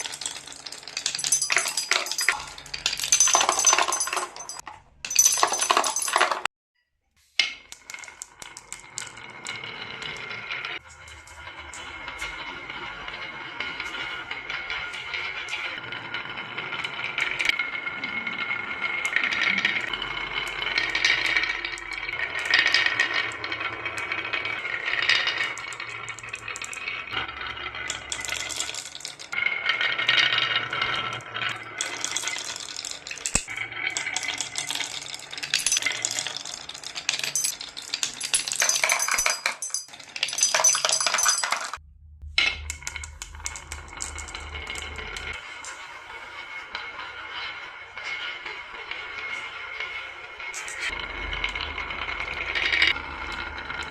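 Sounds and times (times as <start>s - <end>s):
glass marbles clattering: 0.0s - 6.5s, 18.1s - 41.8s, 42.4s - 45.8s, 47.4s - 53.9s.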